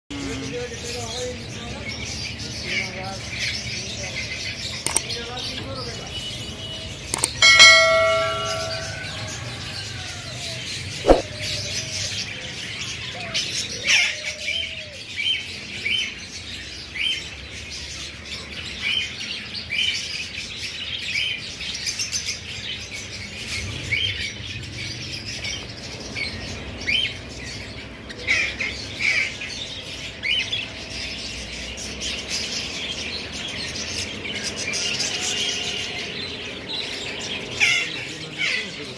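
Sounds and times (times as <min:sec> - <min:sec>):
birds chirping: 0:00.1 - 0:38.9
sharp click: 0:04.8 - 0:05.1, 0:07.2 - 0:07.4, 0:11.0 - 0:11.2
loud ringing tone: 0:07.2 - 0:09.7.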